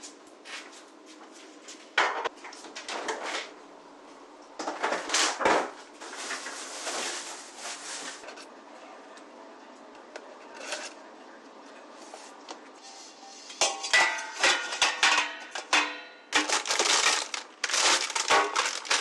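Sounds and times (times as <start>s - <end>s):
knocks and clatter of objects: 13.6s - 19.0s
rustling: 16.4s - 19.0s.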